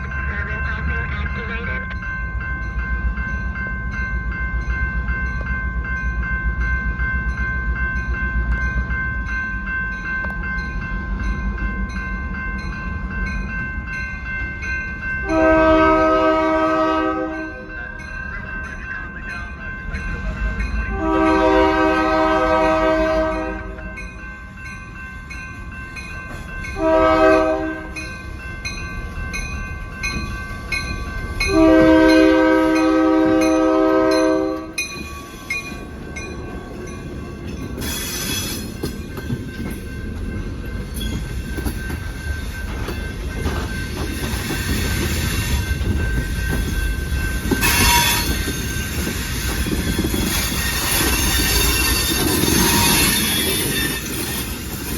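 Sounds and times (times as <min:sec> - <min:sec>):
train wheels rumbling on rail: 0:00.0 - 0:54.9
locomotive horn: 0:15.2 - 0:17.7, 0:20.9 - 0:24.0, 0:26.8 - 0:28.0, 0:31.5 - 0:34.8, 0:47.6 - 0:48.4
wheel squeals: 0:47.5 - 0:54.9.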